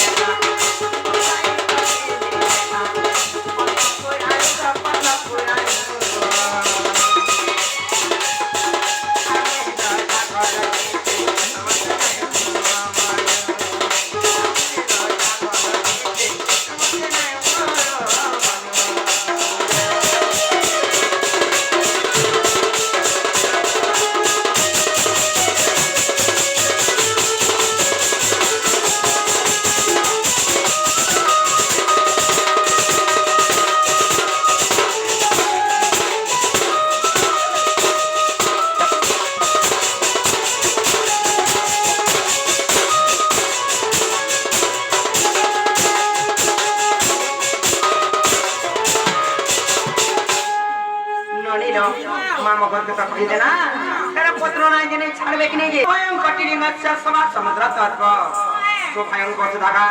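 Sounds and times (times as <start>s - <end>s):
folk melody of held notes: 0.0s - 12.6s, 19.4s - 53.1s
fast steady drumming: 0.0s - 51.0s.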